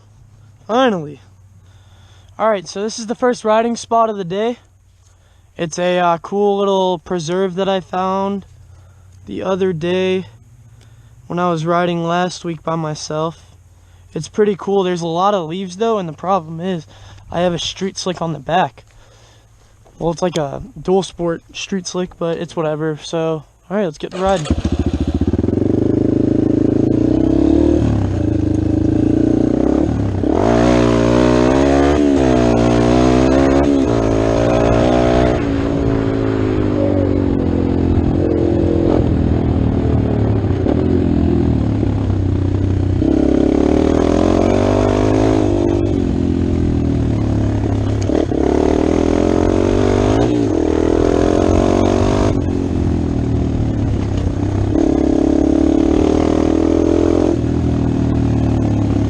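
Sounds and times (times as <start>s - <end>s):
motorcycle engine revving: 24.1s - 59.0s.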